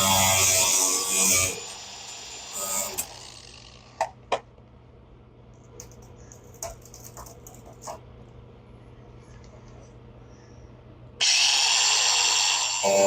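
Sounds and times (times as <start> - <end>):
faint steady hum: 1.5 - 11.2.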